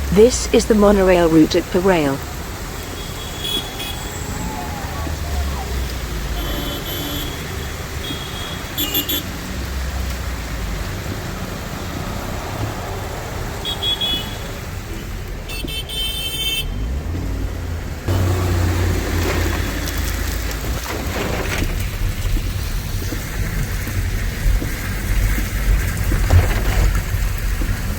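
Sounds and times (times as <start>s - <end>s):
traffic on wet streets: 0.0s - 27.9s
vehicle horn: 3.0s - 4.4s, 6.3s - 9.3s, 15.5s - 17.0s.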